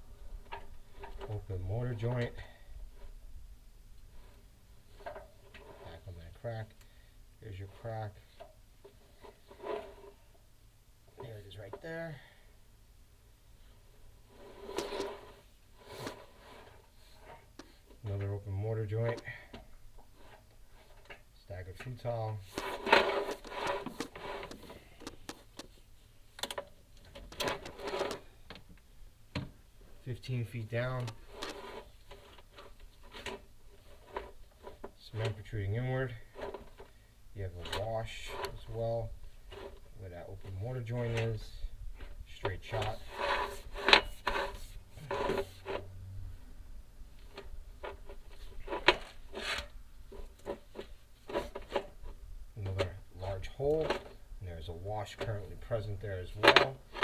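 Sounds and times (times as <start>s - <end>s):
camera cable scraping in flue: 14.3s - 18.3s, 22.0s - 25.8s, 27.3s - 28.4s, 30.5s - 41.4s, 42.0s - 45.9s, 47.2s - 54.2s.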